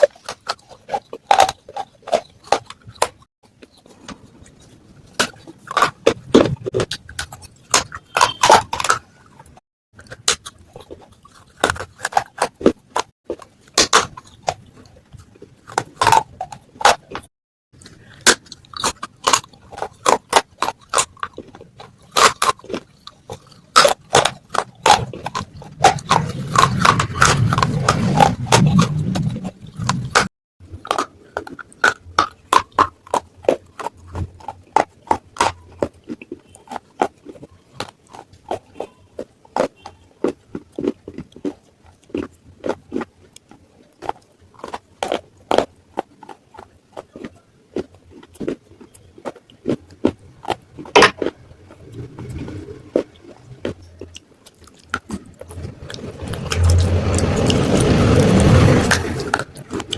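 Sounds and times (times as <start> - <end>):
clay pot pieces crunching: 0.0 - 59.9.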